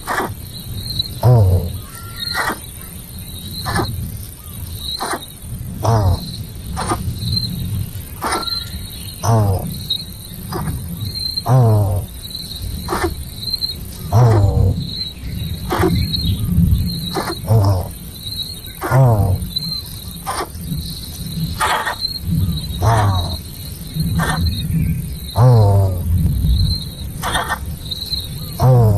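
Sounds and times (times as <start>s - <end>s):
insects chirping: 0.0s - 28.9s
short falling animal calls: 1.2s - 2.7s, 3.6s - 3.9s, 5.0s - 7.0s, 8.2s - 9.7s, 10.5s - 10.8s, 22.8s - 23.4s, 27.2s - 27.6s.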